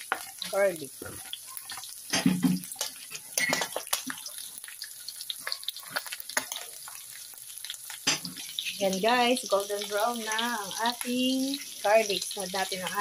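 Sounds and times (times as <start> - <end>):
spatula scraping a pan: 0.0 - 4.5, 5.1 - 7.0
garlic and meat sizzling in oil: 0.0 - 13.0
crackling pops: 1.7 - 7.0.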